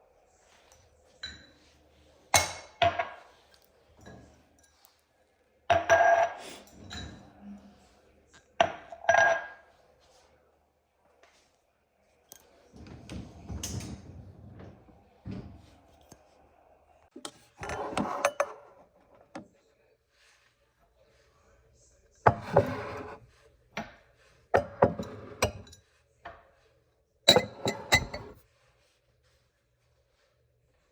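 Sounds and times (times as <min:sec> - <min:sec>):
dishes and glassware clinking: 0:01.1 - 0:04.9, 0:05.7 - 0:07.6, 0:08.6 - 0:09.7, 0:17.2 - 0:19.4, 0:22.3 - 0:23.2, 0:24.5 - 0:26.0, 0:27.3 - 0:28.4
dull knocking and rubbing: 0:22.3 - 0:23.2.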